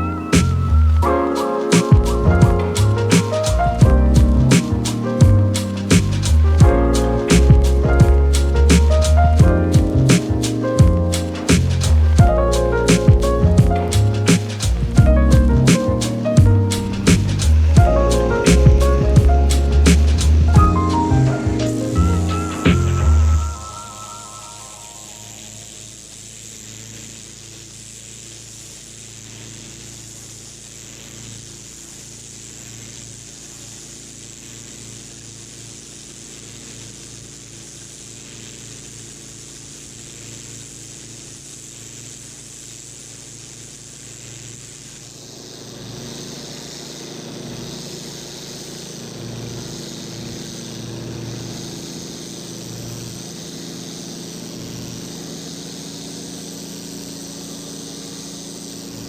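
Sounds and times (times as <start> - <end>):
pressure washer spraying water: 0.0 - 12.2, 12.8 - 22.9, 44.6 - 59.0
motor hum: 0.0 - 59.0.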